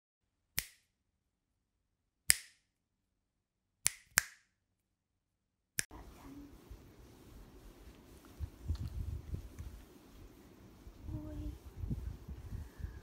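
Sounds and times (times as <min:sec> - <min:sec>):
sharp snaps: 0:00.6 - 0:01.0, 0:02.3 - 0:02.7, 0:03.8 - 0:04.6
faint room noise: 0:05.9 - 0:13.0.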